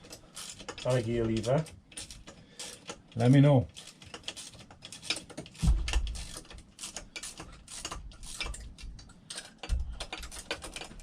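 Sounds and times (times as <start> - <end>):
low thump: 5.6 - 6.2.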